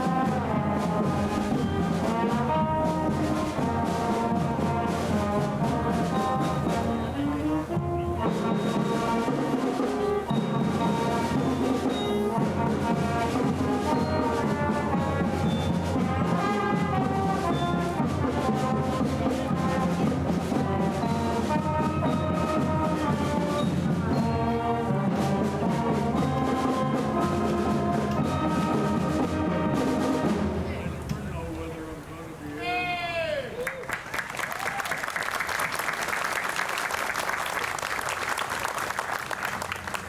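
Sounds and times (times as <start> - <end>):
brass holding chords: 0.0 - 31.1
drums and timpani: 0.0 - 31.6
concert band playing: 0.0 - 32.4.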